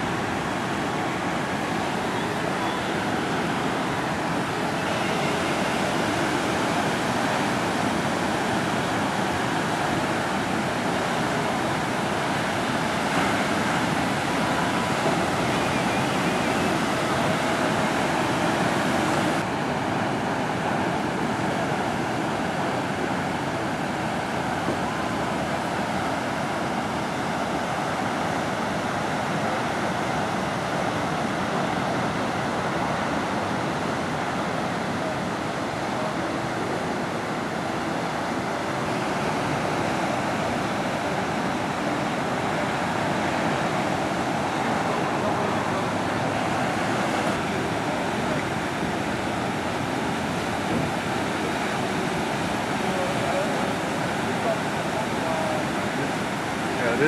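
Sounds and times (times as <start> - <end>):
ocean waves washing: 0.0 - 57.0.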